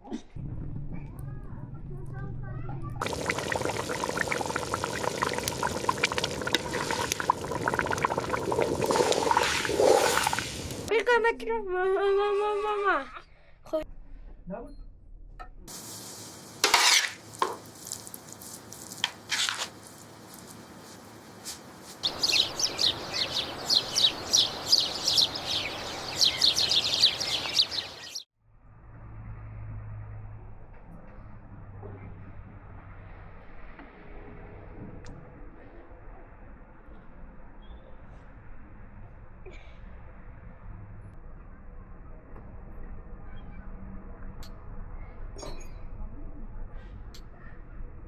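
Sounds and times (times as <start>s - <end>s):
liquid rushing with pops and crackles: 3.0s - 10.9s
steady background hiss: 19.7s - 28.2s
small birds chirping rapidly: 22.0s - 28.3s.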